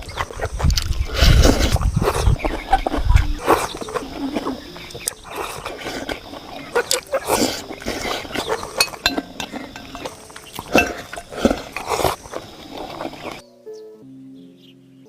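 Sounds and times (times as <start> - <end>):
utensils clinking against bowl: 2.5 - 13.4.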